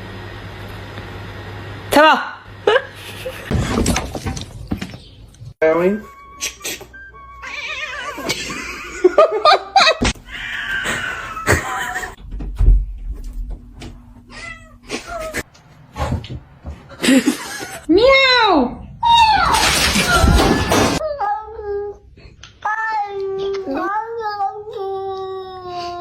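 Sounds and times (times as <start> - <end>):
cats meowing and yowling: 7.3 - 8.8, 10.2 - 12.1, 19.0 - 21.0.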